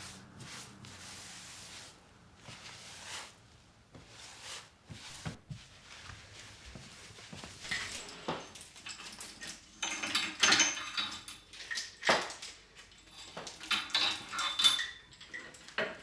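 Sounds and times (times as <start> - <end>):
soft rustling swishes: 0.0 - 8.4.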